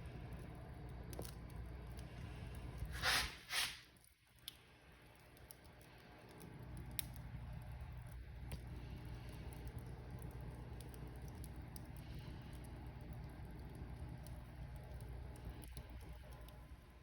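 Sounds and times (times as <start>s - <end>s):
wood fire crackling: 0.0s - 17.0s
fire hissing flare-ups: 2.0s - 4.1s.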